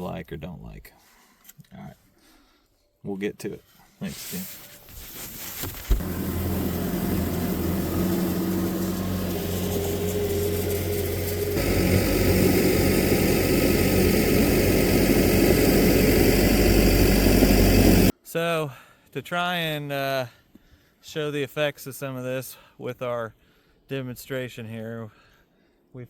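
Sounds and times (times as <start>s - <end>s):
engine humming: 5.9s - 18.1s.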